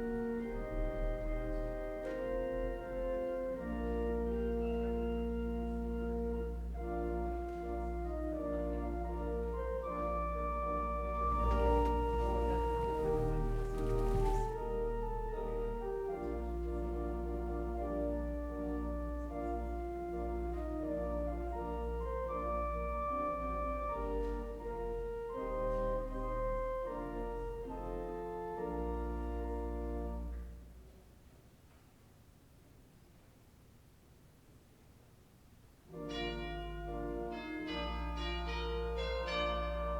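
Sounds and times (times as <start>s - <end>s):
organ chords: 0.0s - 30.9s, 35.9s - 39.9s.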